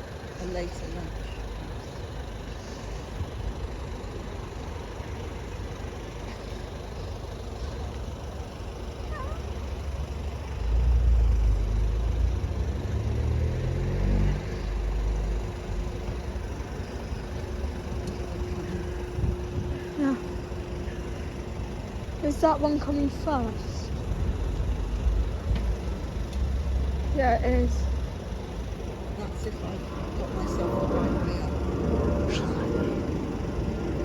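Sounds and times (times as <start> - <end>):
vehicle engine revving: 10.6 - 20.8, 28.8 - 34.0.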